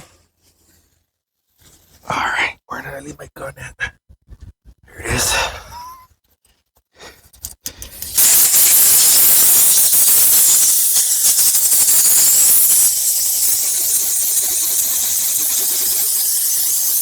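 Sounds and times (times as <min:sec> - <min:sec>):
air blow gun hissing: 0:07.8 - 0:17.0.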